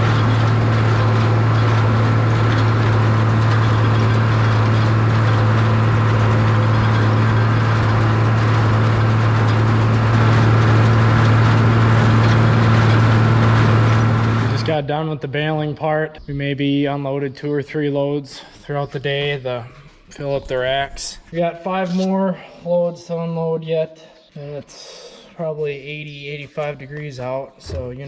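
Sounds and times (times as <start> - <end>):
tractor engine droning: 0.0 - 14.9.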